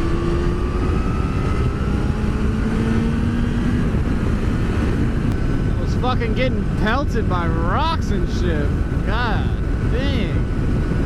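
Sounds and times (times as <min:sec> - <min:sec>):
motorcycle engine accelerating: 0:00.0 - 0:07.8
wind noise on microphone: 0:00.0 - 0:11.0.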